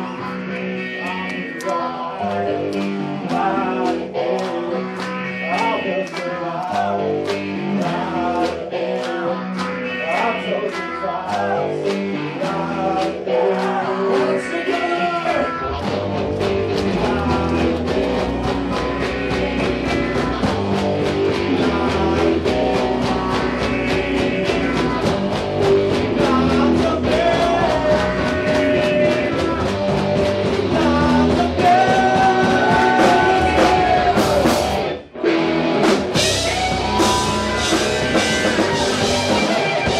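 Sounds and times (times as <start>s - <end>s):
bass guitar: 0.0s - 39.9s
electric guitar: 0.0s - 39.9s
steady drum beat: 15.8s - 34.9s, 35.8s - 39.9s.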